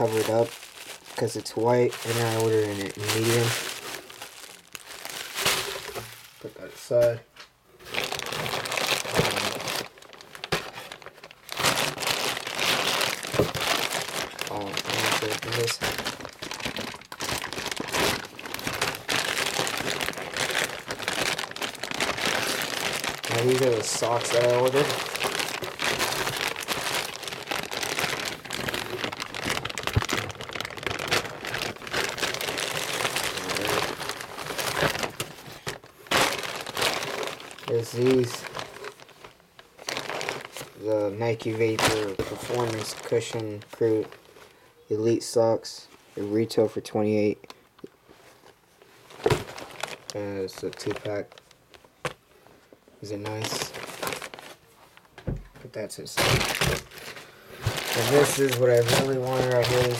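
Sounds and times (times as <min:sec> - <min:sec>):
packaging crinkling and rustling: 0:00.0 - 0:44.6, 0:47.4 - 0:59.9.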